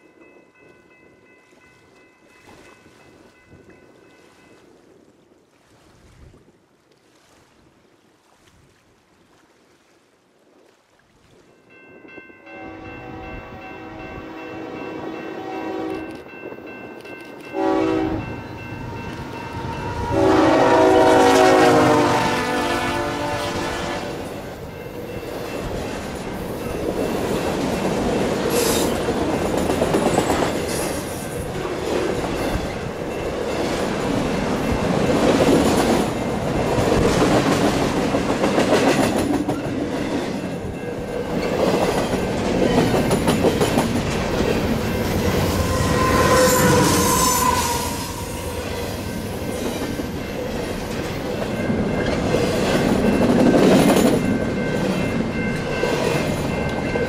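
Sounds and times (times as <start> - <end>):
wheels squealing: 45.0 - 49.8.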